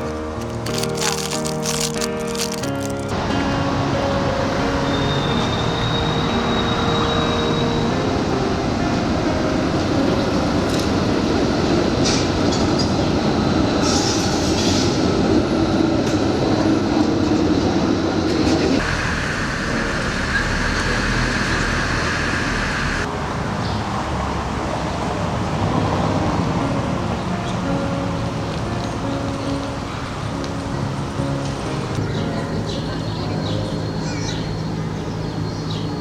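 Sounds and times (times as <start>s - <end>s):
rail vehicle rumbling on tracks: 3.1s - 36.0s
high wheel squeal: 4.7s - 8.2s, 18.8s - 23.1s.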